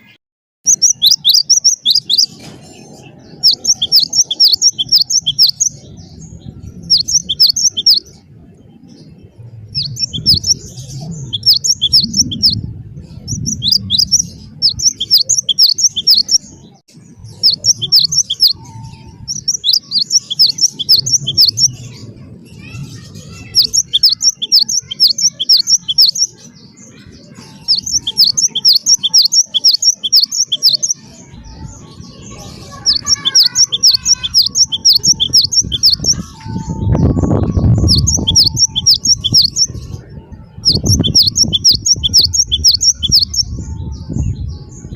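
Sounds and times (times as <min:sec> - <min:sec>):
low rumble: 0:08.0 - 0:14.8.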